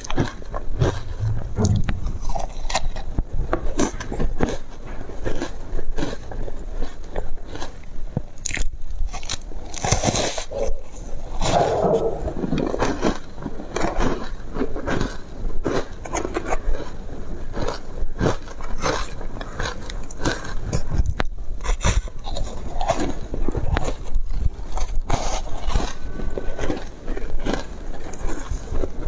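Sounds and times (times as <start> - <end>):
ice crunching being chewed: 0.0 - 29.0.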